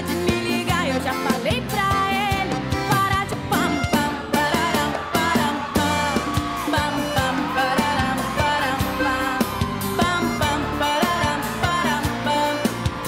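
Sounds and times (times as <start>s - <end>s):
band playing steady beat: 0.0s - 13.0s
woman singing pop song: 0.0s - 13.0s.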